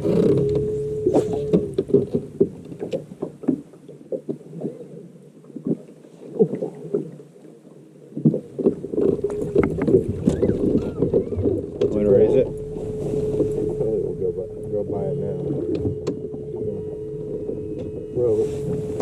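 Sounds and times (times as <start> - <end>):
water slapping against boat hull: 8.1 - 19.0
steady hum: 9.1 - 19.0.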